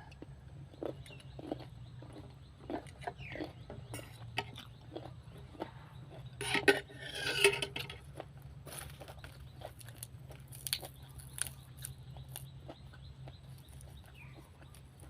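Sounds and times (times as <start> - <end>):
chewing: 0.0 - 7.1, 7.7 - 15.0
spoon scraping a plate: 6.2 - 8.1.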